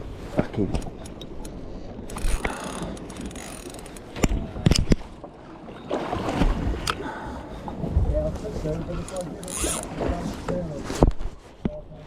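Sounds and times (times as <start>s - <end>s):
fishing reel clicking and grinding: 2.1s - 4.1s, 9.1s - 9.9s.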